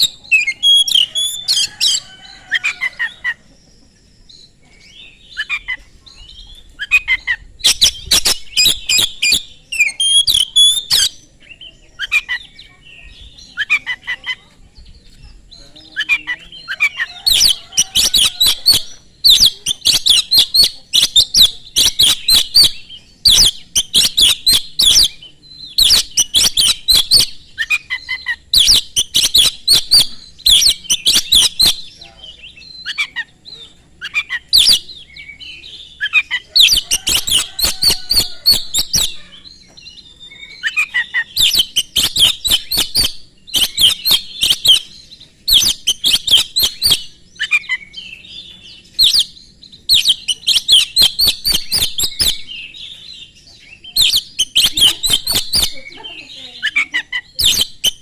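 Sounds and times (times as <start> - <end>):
magpie-robin singing: 0.0 - 58.0.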